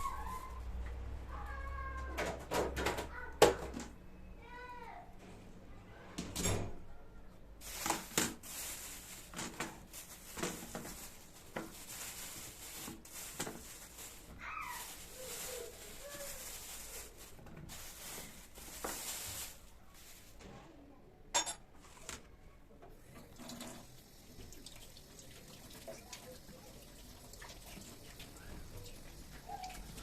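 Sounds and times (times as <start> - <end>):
handling noises: 7.6 - 20.8
water running into sink: 23.1 - 30.0.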